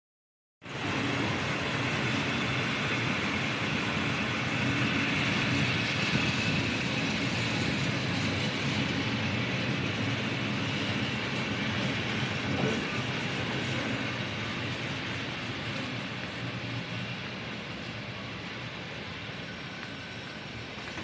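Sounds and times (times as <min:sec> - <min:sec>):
freight train rumbling: 0:00.6 - 0:21.0.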